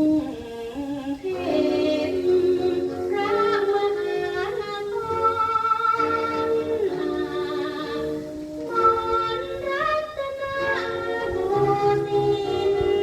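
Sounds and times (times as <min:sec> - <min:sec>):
woman singing with ensemble: 0:00.0 - 0:13.0.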